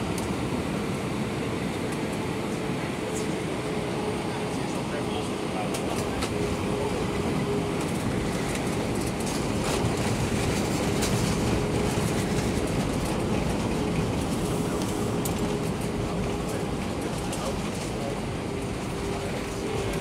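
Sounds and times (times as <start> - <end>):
jet engines humming: 0.0 - 20.0
wheels rumbling on pavement: 5.7 - 20.0.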